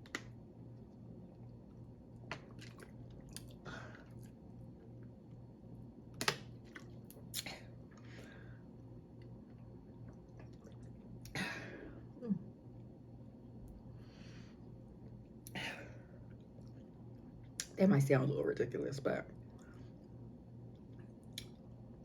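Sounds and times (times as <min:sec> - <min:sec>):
person chewing food: 0:00.8 - 0:05.3, 0:06.5 - 0:08.1, 0:09.2 - 0:11.3.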